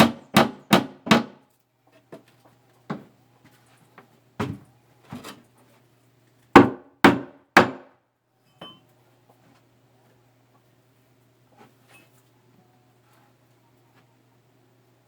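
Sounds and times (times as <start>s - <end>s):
hammer striking wood: 0.0s - 1.4s, 6.6s - 7.9s.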